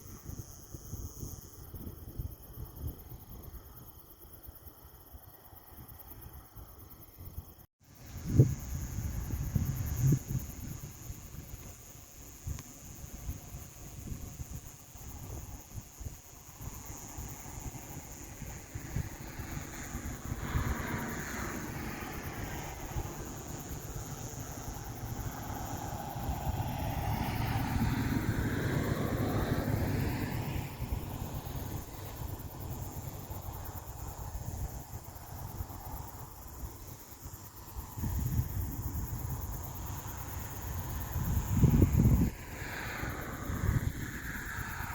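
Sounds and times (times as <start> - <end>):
wind buffeting microphone: 7.2 - 44.9
vehicle passing by: 18.6 - 34.3, 40.7 - 44.9.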